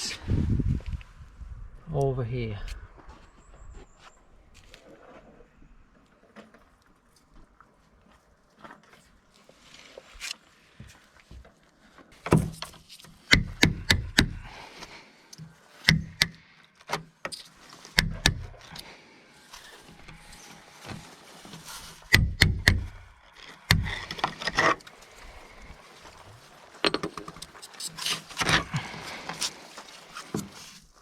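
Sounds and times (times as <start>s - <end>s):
plastic trim knocks and clicks: 13.4s - 14.4s.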